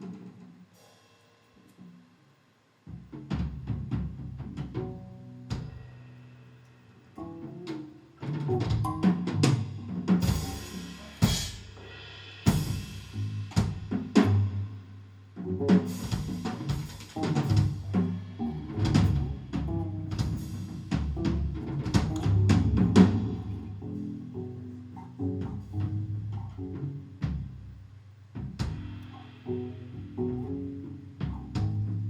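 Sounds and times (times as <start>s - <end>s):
live band music: 7.2s - 14.8s, 15.4s - 27.5s
bass line: 8.4s - 11.5s, 12.5s - 32.0s.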